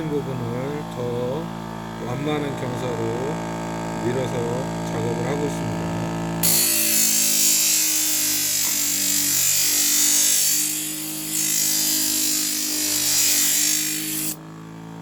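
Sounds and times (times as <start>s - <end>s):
knife grinding on wheel: 6.4s - 14.4s
sharpener motor hum: 6.4s - 14.4s.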